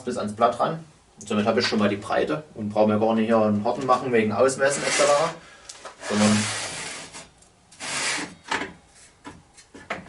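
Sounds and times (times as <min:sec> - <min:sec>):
saw fence sliding on rail: 0:04.7 - 0:05.4, 0:06.0 - 0:08.4.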